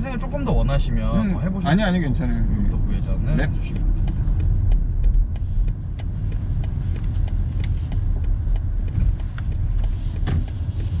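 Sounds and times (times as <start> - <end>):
diesel engine and tyres rumbling: 0.0 - 11.0
light regular ticks: 2.6 - 11.0.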